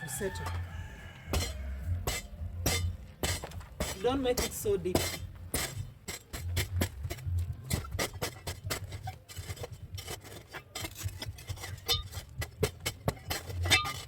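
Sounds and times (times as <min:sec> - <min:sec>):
tool scraping and digging ground: 0:00.0 - 0:14.0.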